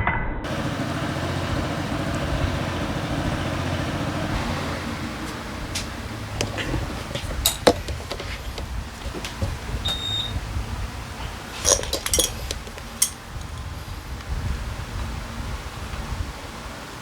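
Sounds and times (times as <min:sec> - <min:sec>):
light metallic clicks of parts: 0:05.8 - 0:09.5, 0:11.6 - 0:13.7.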